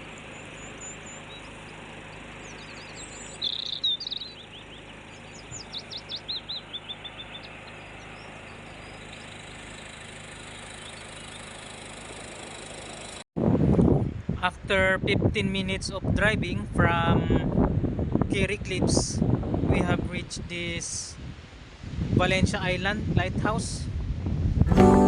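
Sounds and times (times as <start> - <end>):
songbird singing high notes: 0.3 - 11.2.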